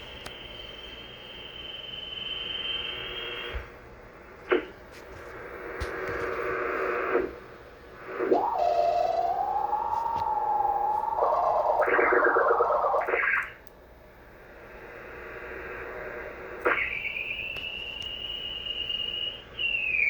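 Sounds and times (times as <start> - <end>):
high radio whistle: 0.0 - 3.8, 5.3 - 7.3, 8.0 - 13.6, 14.5 - 20.0
warbling radio beat tone: 8.0 - 13.6, 15.5 - 20.0.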